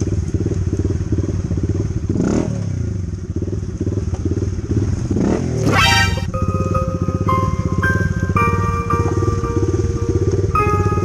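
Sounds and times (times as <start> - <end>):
dirt bike engine running: 0.0 - 6.3
short rising high-pitched sound: 5.6 - 8.6
background music: 5.7 - 11.0.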